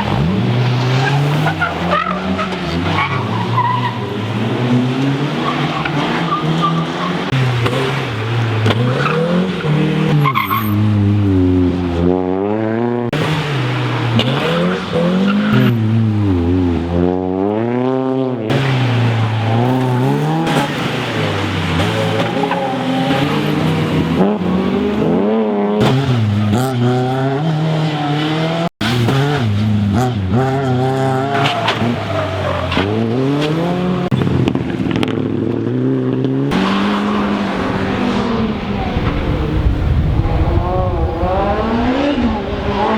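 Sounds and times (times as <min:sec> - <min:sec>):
rally car engine: 0:00.0 - 0:42.9.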